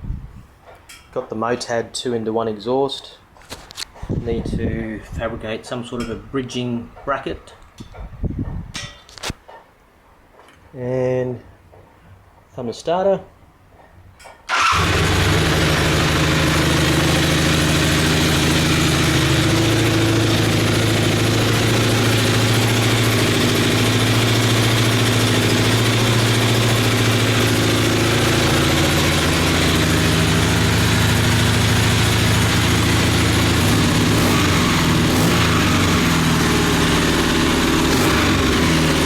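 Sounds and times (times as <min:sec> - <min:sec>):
motorcycle engine idling: 0:14.5 - 0:39.0.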